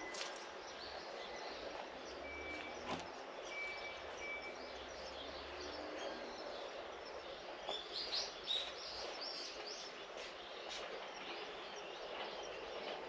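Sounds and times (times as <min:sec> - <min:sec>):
distant bird chirps: 0:00.0 - 0:13.0.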